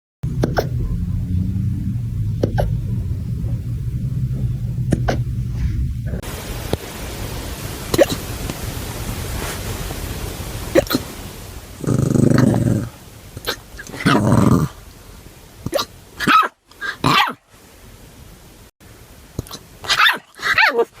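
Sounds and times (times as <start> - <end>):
puppy growling: 0.2 - 6.2, 11.8 - 14.8.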